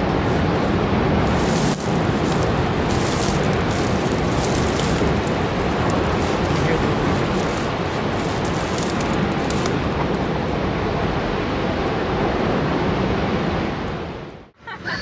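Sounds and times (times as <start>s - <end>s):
loud rushing roar: 0.0s - 12.7s.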